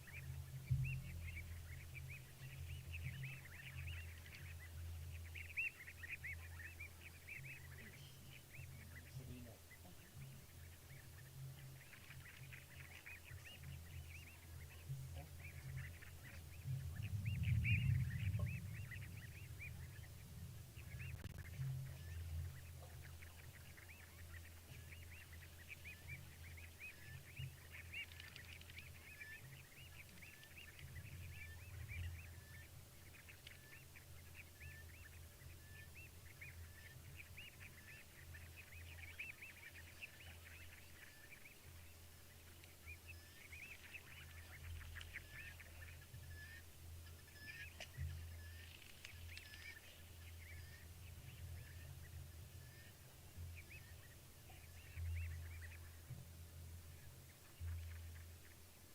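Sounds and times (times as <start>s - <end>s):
chorus of high chirping calls: 0.0s - 56.1s
low rumble: 13.8s - 24.4s.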